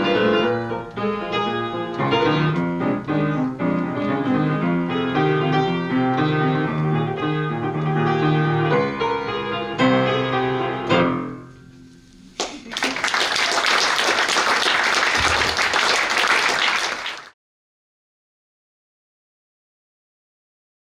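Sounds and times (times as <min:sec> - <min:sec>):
piano piece: 0:00.0 - 0:12.1, 0:12.8 - 0:17.3
audience applauding: 0:12.4 - 0:17.4.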